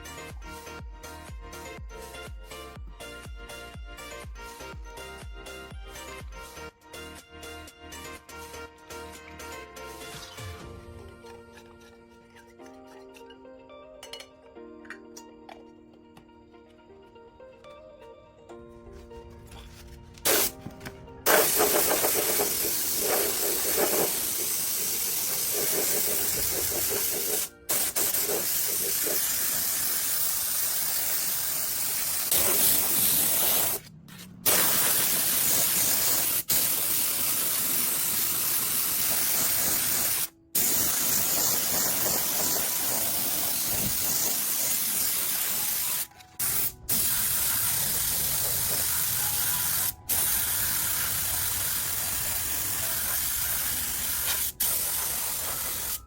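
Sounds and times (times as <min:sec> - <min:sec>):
spraying hiss: 0:20.2 - 0:20.6, 0:21.3 - 0:56.0.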